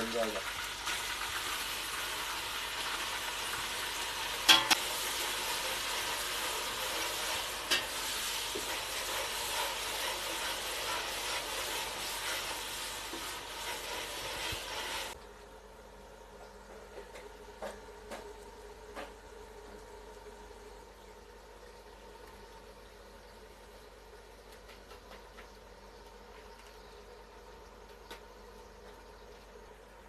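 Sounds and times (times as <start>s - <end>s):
food sizzling in hot oil: 0.0s - 15.2s.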